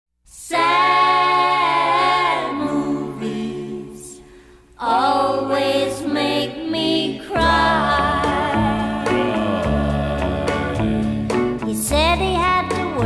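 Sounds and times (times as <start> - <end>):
voices singing without instruments: 0.3 - 13.0.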